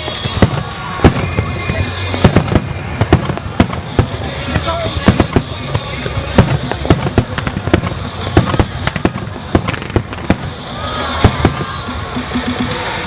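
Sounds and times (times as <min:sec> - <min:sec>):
continuous rumble: 0:00.0 - 0:13.0
fireworks bangs and pops: 0:00.0 - 0:13.0.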